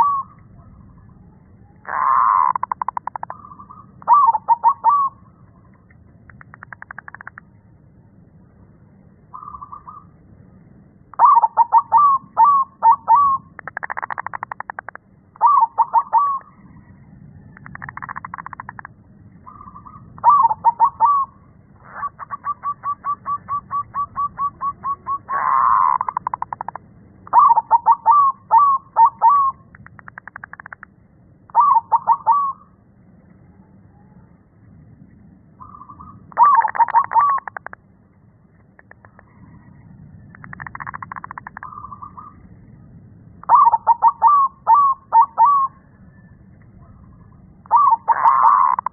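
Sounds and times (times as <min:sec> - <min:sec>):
dove cooing: 0:00.0 - 0:00.7, 0:01.8 - 0:05.2, 0:11.1 - 0:16.6, 0:19.4 - 0:30.8, 0:31.5 - 0:32.8, 0:35.6 - 0:37.8, 0:43.4 - 0:48.9
buzzy rattling calls: 0:01.8 - 0:05.1, 0:06.3 - 0:07.5, 0:11.2 - 0:16.6, 0:17.6 - 0:30.9, 0:35.6 - 0:37.8, 0:40.3 - 0:42.4, 0:47.0 - 0:48.9.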